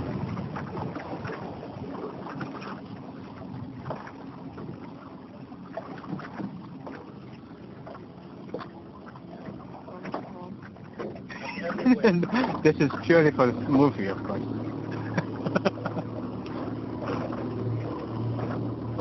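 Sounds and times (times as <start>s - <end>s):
wind buffeting microphone: 0.0s - 5.0s
water lapping against boat hull: 0.0s - 19.0s.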